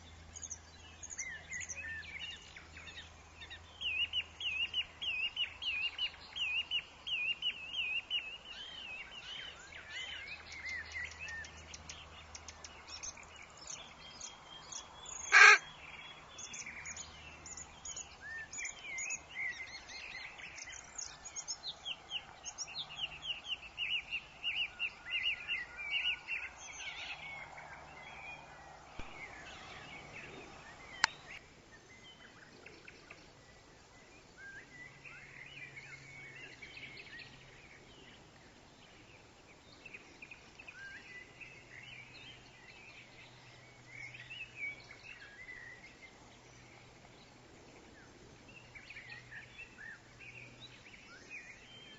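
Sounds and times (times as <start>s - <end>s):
birds chirping: 0.0s - 51.9s
faint steady hiss: 0.0s - 51.9s
loud harsh bird call: 15.3s - 15.7s.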